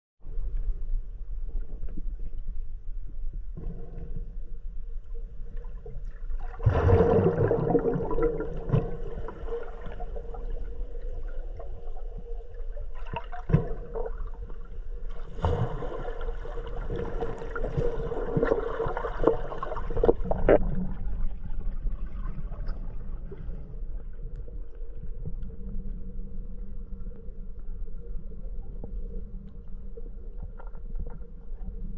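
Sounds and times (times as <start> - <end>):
low underwater hum: 0.2 - 31.9
gurgling water: 5.6 - 24.2.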